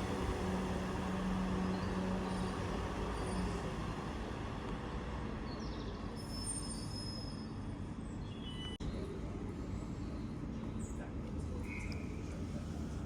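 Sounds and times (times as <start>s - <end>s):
passenger train rumbling: 0.0s - 5.4s.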